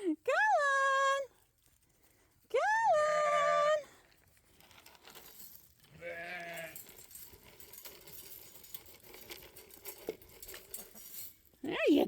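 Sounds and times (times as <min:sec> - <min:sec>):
sheep bleating: 0:05.9 - 0:06.8.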